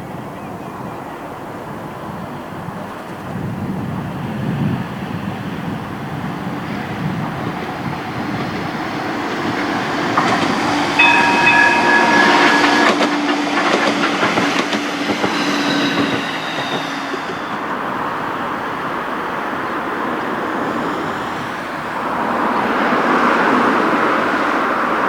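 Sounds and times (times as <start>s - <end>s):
tram running past: 0.0s - 25.0s
wheels clicking over rail joints: 5.8s - 23.9s
high ringing tone: 9.5s - 18.0s.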